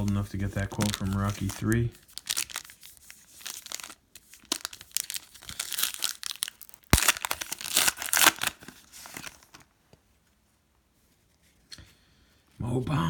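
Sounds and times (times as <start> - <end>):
foil wrapper crinkling: 0.0 - 9.7.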